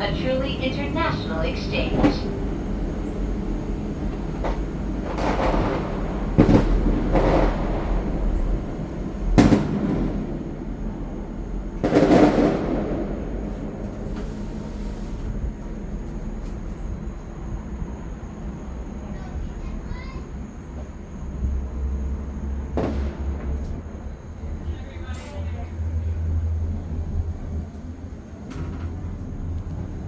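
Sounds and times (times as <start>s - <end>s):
fireworks bangs: 0.0s - 2.3s, 4.4s - 10.7s, 11.8s - 13.2s
cabin low rumble: 0.0s - 30.0s.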